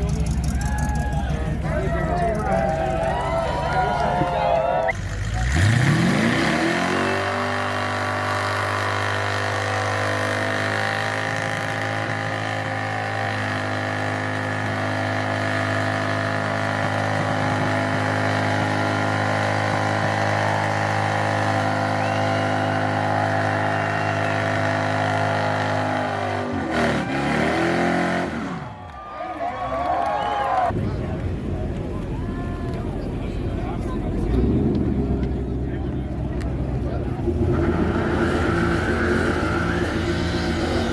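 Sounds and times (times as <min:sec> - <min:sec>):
car engine revving high: 0:04.9 - 0:28.7.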